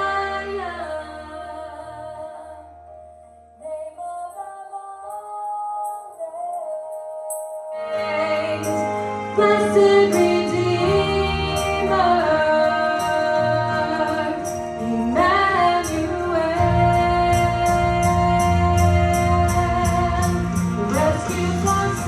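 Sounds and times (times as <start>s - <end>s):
woman singing: 3.6s - 22.0s
band with bass and cymbal: 5.8s - 22.0s.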